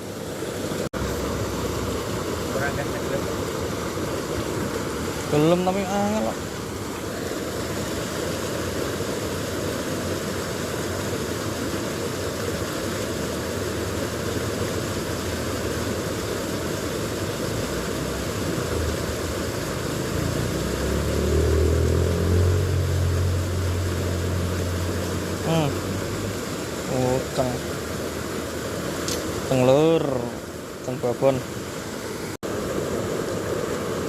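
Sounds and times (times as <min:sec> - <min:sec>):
stream water over rocks: 0:00.0 - 0:34.0
low engine rumble: 0:17.6 - 0:28.5.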